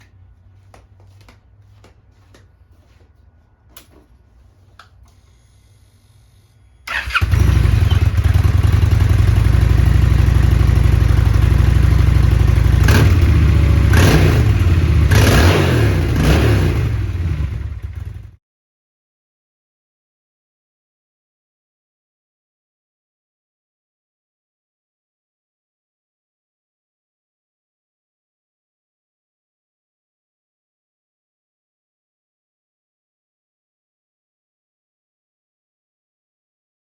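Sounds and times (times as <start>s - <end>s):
motorcycle engine idling and revving: 6.9s - 18.4s.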